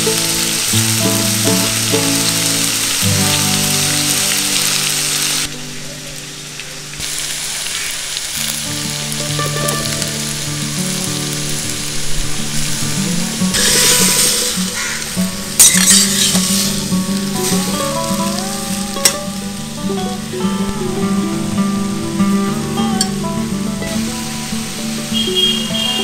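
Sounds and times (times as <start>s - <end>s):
background music: 0.0s - 5.8s, 8.5s - 12.1s, 13.1s - 26.0s
food sizzling in a pan: 0.0s - 26.0s
spatula stirring: 15.6s - 16.8s.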